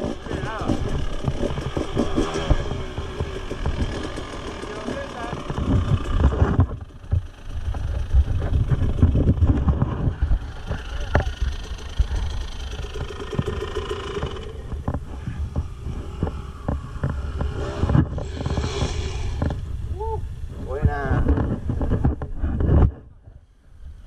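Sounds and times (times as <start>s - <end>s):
bike knocks and rattles: 0.0s - 18.3s
motorbike engine at low revs: 0.0s - 23.0s.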